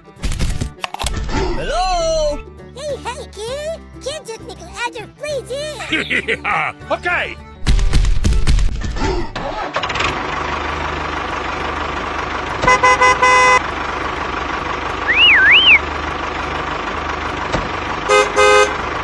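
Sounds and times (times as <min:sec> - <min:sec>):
truck engine running: 0:00.0 - 0:19.0
horn honks: 0:12.5 - 0:14.4, 0:15.0 - 0:16.0, 0:17.9 - 0:19.0
warbling whistle: 0:15.0 - 0:15.9.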